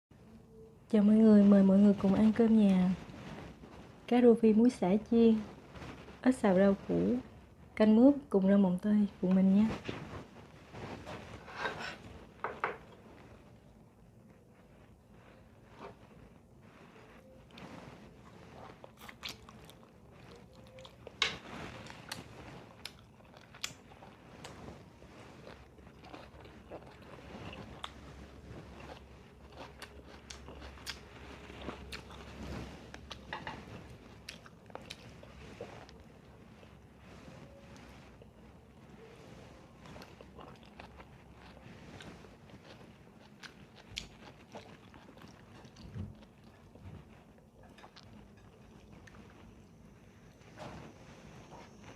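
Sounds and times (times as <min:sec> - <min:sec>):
person chewing and crunching food: 0:16.9 - 0:50.4.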